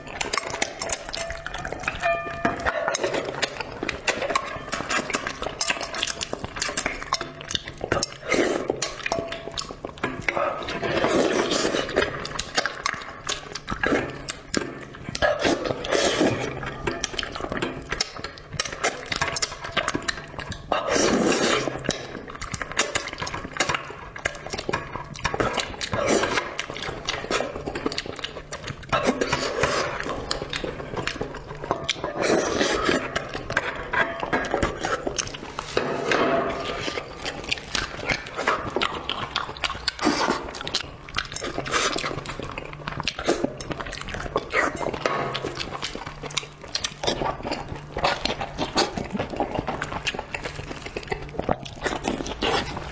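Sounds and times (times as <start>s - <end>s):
wet chewing and slurping: 0.0s - 52.9s
utensils clicking against dishes: 0.1s - 13.0s.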